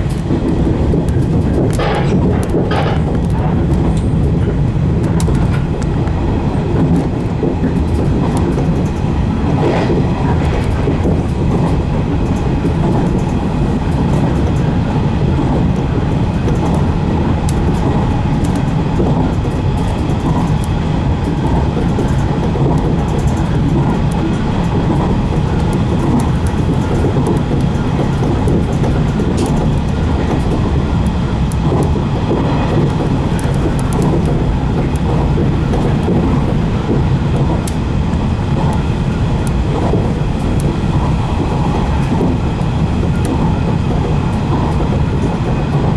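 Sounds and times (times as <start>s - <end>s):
clicks over rail joints: 0.0s - 6.2s
train wheels rumbling on rails: 0.0s - 45.9s.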